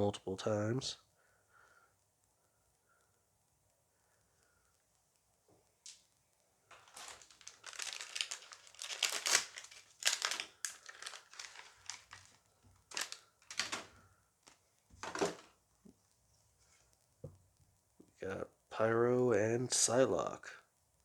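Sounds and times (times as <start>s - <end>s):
wrapper crinkling and tearing: 6.7s - 15.5s.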